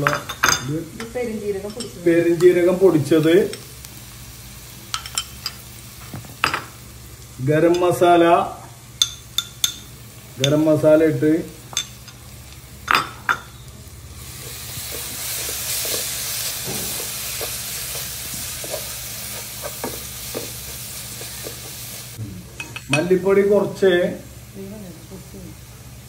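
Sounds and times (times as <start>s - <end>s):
masala sizzling in oil: 0.0s - 26.0s.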